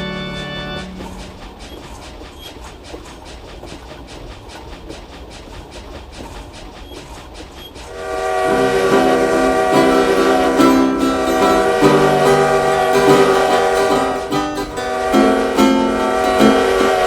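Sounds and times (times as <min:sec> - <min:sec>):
loud sustained chord: 0:00.0 - 0:01.0, 0:08.0 - 0:17.0
train wheels clicking on rails: 0:00.0 - 0:17.0.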